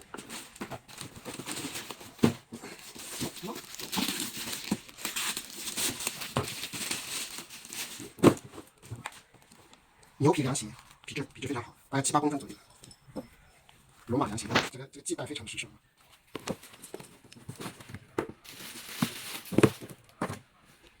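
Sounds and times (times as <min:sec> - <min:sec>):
packaging crinkling and rustling: 0:00.0 - 0:09.8, 0:16.2 - 0:20.4.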